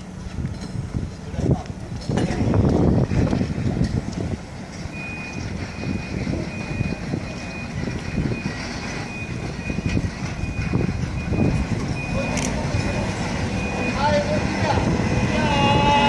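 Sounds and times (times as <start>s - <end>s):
railcar rolling on rails: 0.0s - 16.0s
electronic warning beeps: 4.9s - 14.4s, 15.1s - 15.6s.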